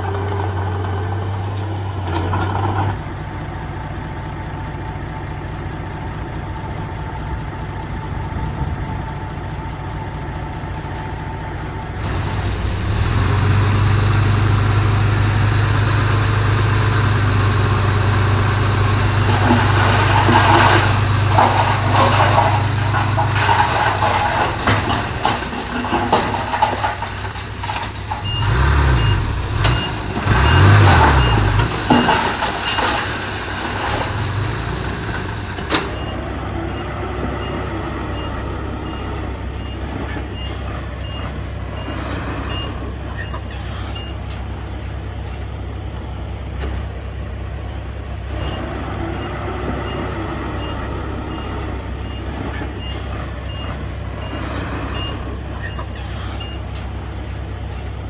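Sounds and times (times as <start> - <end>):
heavy diesel machinery running: 0.0 - 58.0
crackling and crunching: 12.0 - 36.0.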